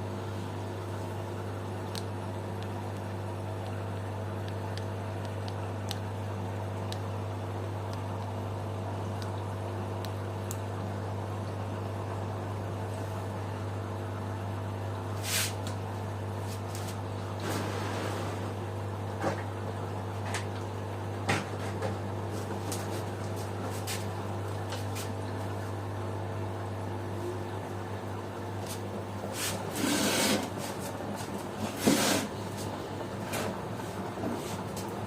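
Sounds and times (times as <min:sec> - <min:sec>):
washing machine motor hum: 0:00.0 - 0:35.0
washing machine swishing rushes: 0:16.4 - 0:18.7, 0:22.3 - 0:25.2, 0:28.6 - 0:35.0.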